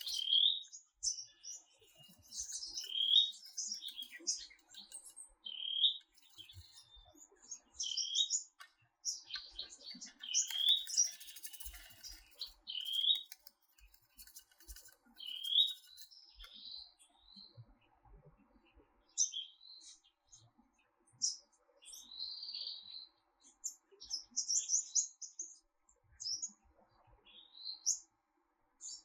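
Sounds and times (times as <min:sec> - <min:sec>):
songbirds chirping and whistling: 0:00.0 - 0:18.0, 0:18.6 - 0:20.6.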